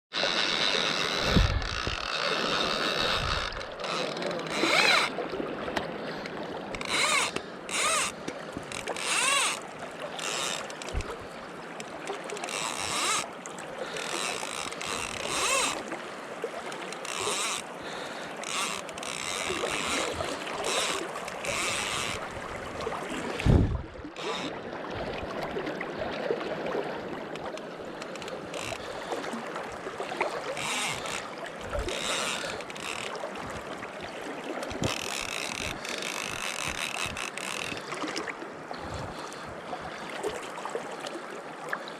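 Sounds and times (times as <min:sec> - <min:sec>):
river water rushing: 0:00.2 - 0:41.9
wind buffeting microphone: 0:01.2 - 0:02.1, 0:03.0 - 0:03.7, 0:23.4 - 0:24.1.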